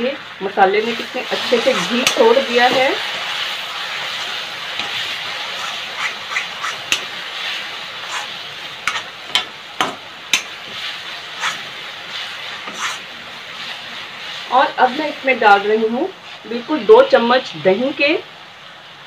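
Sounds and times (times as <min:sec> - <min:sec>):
masala sizzling in a pan: 0:00.0 - 0:19.0
ladle stirring and scraping: 0:01.1 - 0:07.1, 0:08.0 - 0:09.1, 0:10.6 - 0:15.0.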